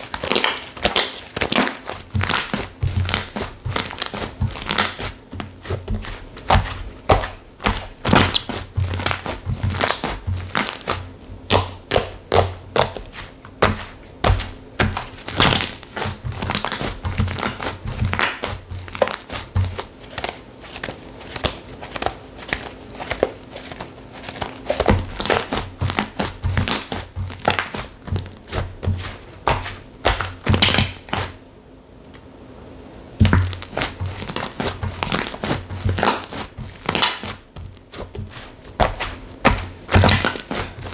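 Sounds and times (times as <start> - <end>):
slime crackling and popping: 0.0 - 31.4, 33.2 - 40.9.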